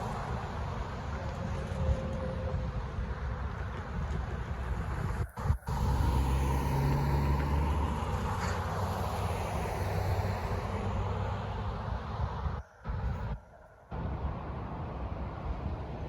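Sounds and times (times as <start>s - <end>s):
vehicle rumbling past: 4.5s - 13.4s.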